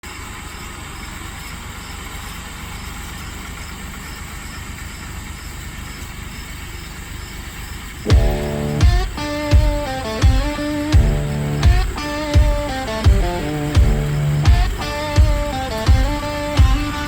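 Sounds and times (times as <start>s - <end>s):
tractor engine rumbling: 0.0s - 17.0s
loud rock music: 8.1s - 17.0s.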